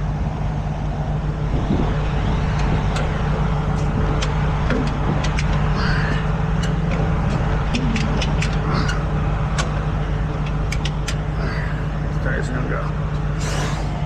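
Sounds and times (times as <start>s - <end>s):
heavy truck engine idling: 0.0s - 14.0s.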